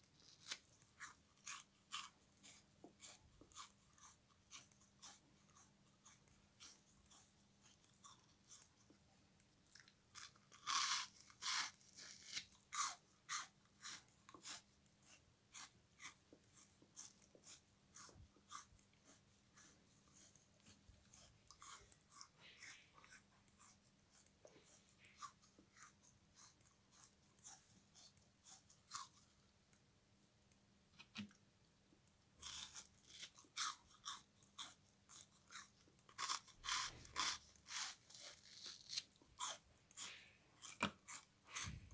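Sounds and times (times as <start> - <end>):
crunching bites and chewing: 0.0 - 8.8, 9.6 - 14.6, 32.4 - 41.9.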